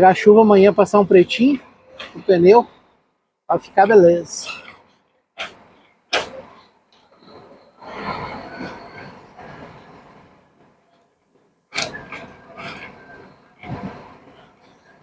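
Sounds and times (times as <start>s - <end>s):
truck rumbling and rattling: 11.7s - 15.0s.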